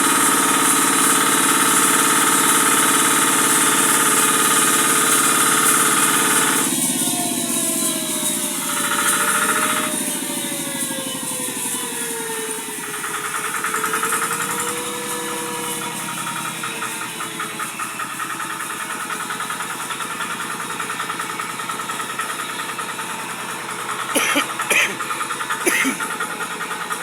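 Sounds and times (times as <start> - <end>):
grinding machine rhythmic rattle: 0.0 - 27.0.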